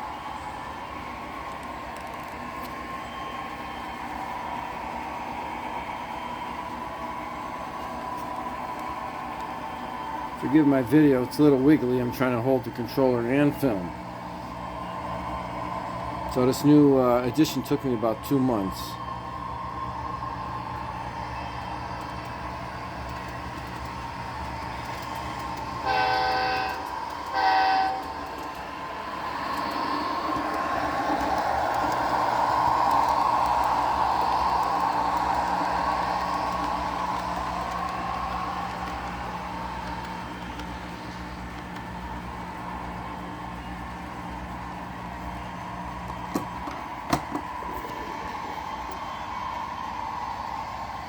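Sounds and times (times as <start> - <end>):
model train running on track: 0.0 - 51.0
wheels on rails: 0.0 - 51.0
model train motor whir: 20.8 - 43.6
model locomotive horn blasts: 25.8 - 28.4.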